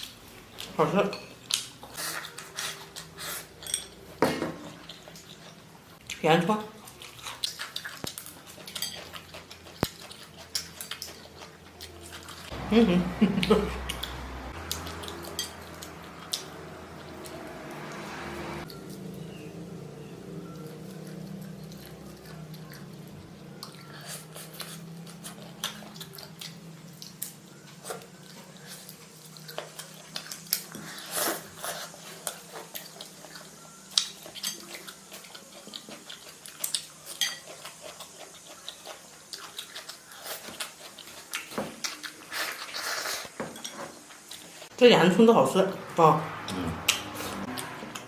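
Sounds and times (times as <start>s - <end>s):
chewing: 0.0s - 12.6s, 13.3s - 44.7s, 46.3s - 48.0s
utensils clinking against a dish: 0.8s - 5.5s, 7.2s - 11.5s, 14.8s - 16.4s, 29.5s - 38.0s, 41.5s - 44.1s.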